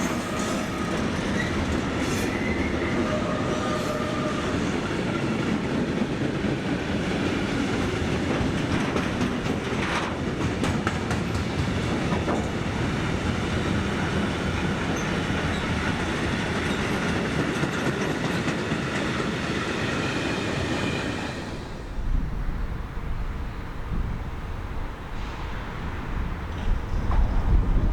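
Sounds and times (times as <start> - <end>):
high wheel squeal: 0.0 - 4.6
train wheel rumble: 0.0 - 27.9.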